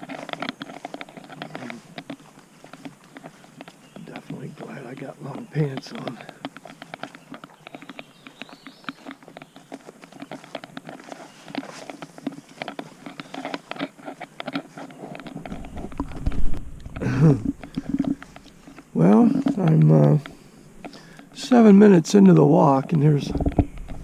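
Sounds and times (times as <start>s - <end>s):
footsteps through dense weeds: 9.9s - 12.6s
low rumble: 15.4s - 18.0s.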